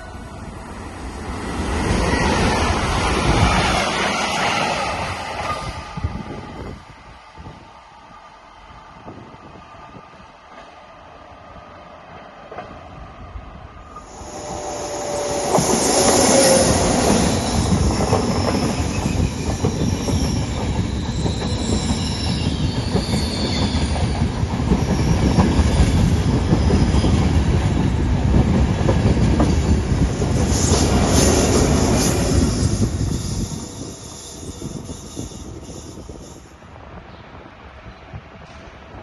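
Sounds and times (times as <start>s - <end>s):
high-pitched wheel squeal: 14.0s - 24.2s
train wheels rattling over rails: 14.1s - 36.5s.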